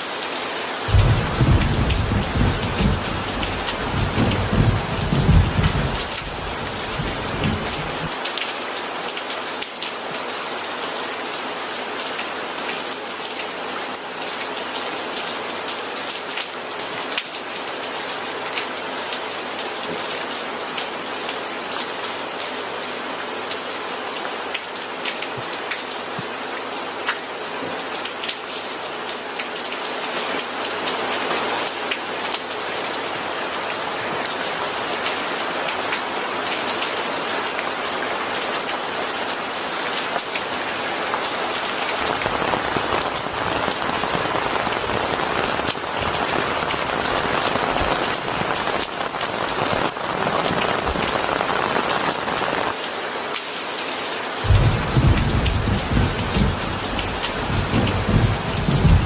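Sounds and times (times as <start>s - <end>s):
rain drops ticking: 0.7s - 22.4s, 28.0s - 59.0s
deep thunder rumble: 0.9s - 8.1s, 54.5s - 59.0s
heavy rain hissing: 0.9s - 8.3s, 40.3s - 52.9s, 54.4s - 59.0s.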